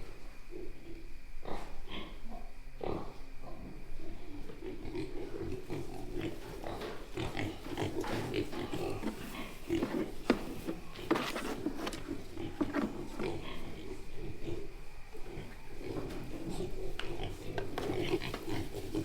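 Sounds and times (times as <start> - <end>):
piglets grunting: 0.4 - 19.0.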